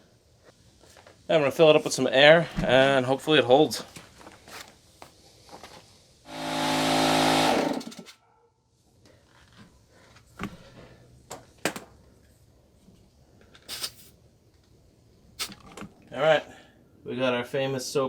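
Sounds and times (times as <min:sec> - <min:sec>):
air compressor motor running: 0:06.3 - 0:08.1.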